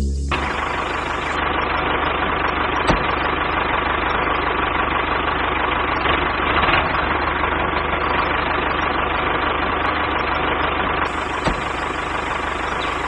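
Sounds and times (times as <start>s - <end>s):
small machine running: 10.3s - 13.0s.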